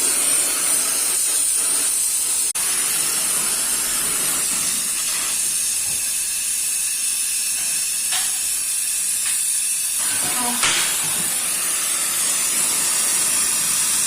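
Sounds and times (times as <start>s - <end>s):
torch flame hissing: 0.0s - 14.0s.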